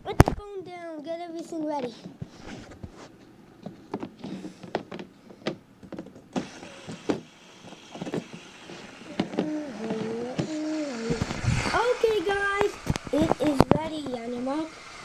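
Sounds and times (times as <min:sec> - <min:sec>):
pitched hum: 0:06.3 - 0:15.0
plastic toy track clicks and knocks: 0:06.4 - 0:11.4.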